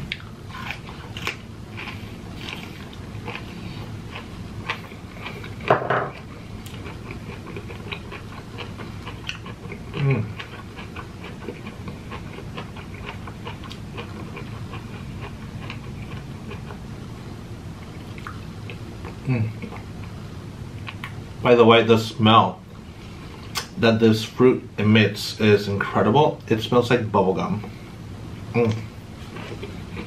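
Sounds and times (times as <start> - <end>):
close chewing with wet smacks: 6.6 - 16.8, 17.9 - 20.1.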